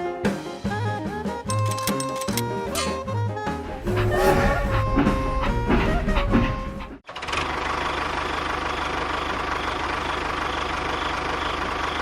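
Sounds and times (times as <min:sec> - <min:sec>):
music: 0:00.0 - 0:07.0
small engine idling: 0:06.0 - 0:12.0.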